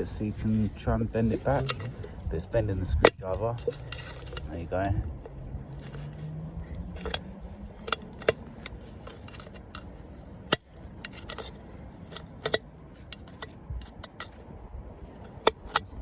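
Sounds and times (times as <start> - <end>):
screwdriver prising open tin can: 1.4 - 2.3.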